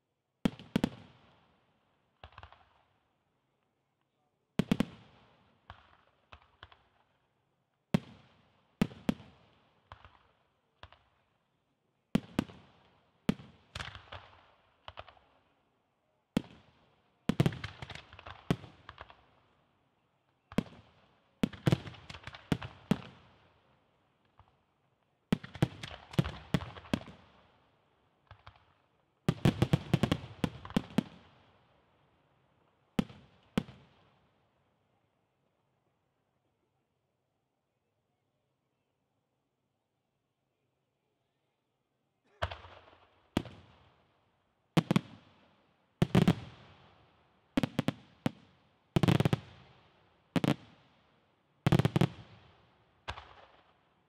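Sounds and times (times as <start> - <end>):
fireworks bursting: 29.3 - 31.2, 46.0 - 46.9, 47.6 - 49.7, 50.4 - 50.8, 51.7 - 52.5.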